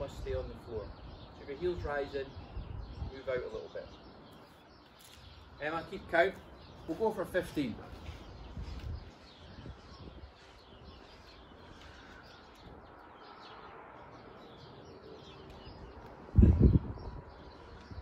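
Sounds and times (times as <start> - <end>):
birds chirping faintly: 0.0 - 18.0.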